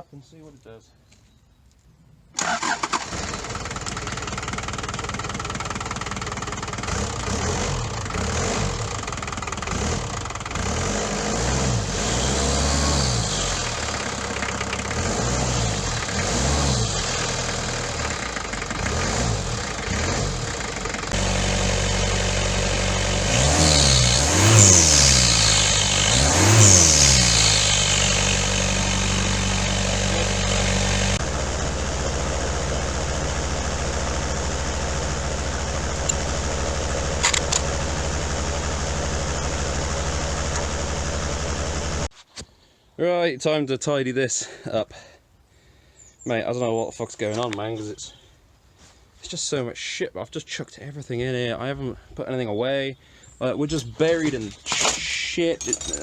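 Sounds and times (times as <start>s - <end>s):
engine starting and revving: 2.4s - 42.1s.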